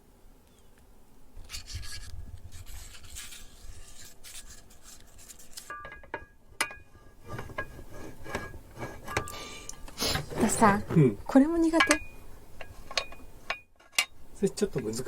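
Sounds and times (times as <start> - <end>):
kitchen utensils scraping: 7.2 - 9.3.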